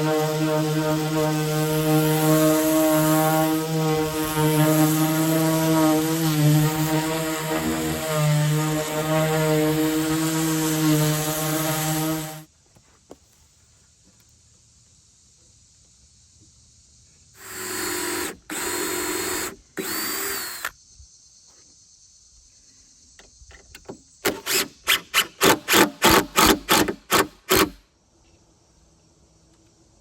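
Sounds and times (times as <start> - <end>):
power tool motor whining: 0.0 - 12.5, 17.4 - 20.7, 24.3 - 27.8
power tool short pulses: 24.3 - 27.8.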